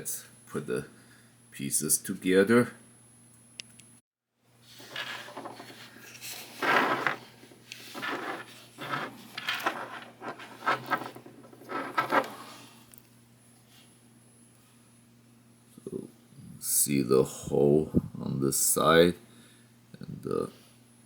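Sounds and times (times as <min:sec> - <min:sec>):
plastic pieces rubbing and knocking: 0:04.7 - 0:12.6.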